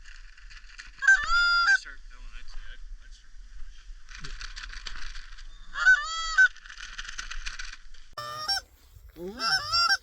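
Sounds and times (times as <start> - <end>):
geese honking: 8.2 - 8.7, 9.3 - 10.0.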